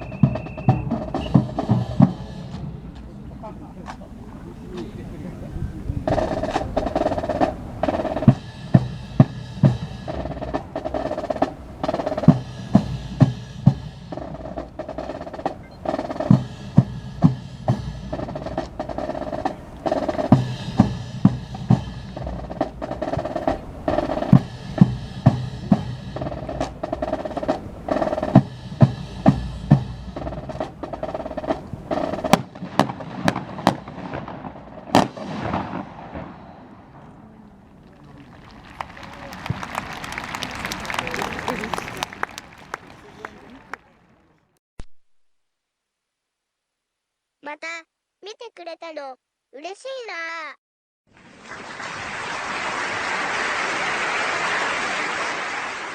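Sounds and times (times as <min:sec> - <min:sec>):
marching snare and bass drums: 0:00.0 - 0:43.8.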